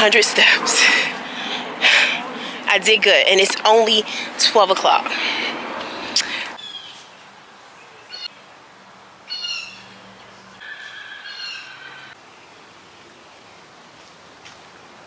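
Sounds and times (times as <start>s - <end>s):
birds calling: 0.0s - 7.0s, 10.6s - 12.2s.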